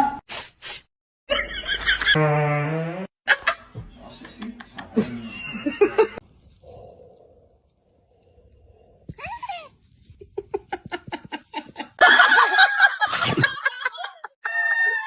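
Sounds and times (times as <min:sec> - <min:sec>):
person laughing: 0:04.8 - 0:06.2, 0:09.2 - 0:14.3.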